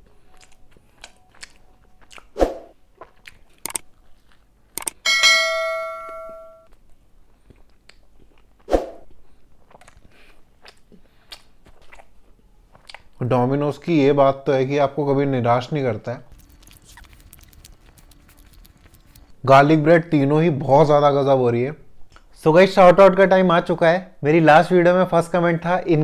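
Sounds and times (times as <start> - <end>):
close chewing and mouth clicks: 0.0 - 5.0, 6.7 - 13.2, 16.2 - 19.5
bright bell chime: 5.1 - 6.7.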